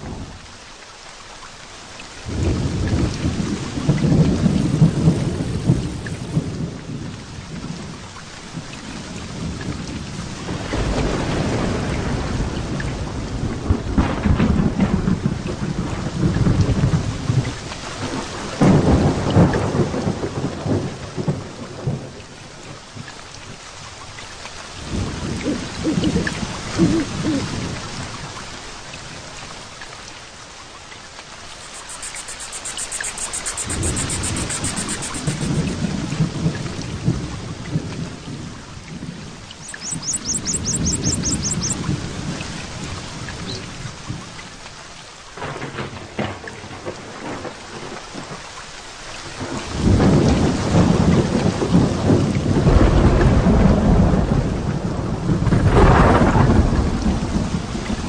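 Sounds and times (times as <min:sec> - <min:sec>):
heavy rain: 0:00.0 - 0:58.0
thunder rolls: 0:02.3 - 0:07.9, 0:09.4 - 0:22.2, 0:31.6 - 0:42.4, 0:49.4 - 0:58.0
high chirping trill: 0:31.6 - 0:35.6, 0:39.6 - 0:41.8.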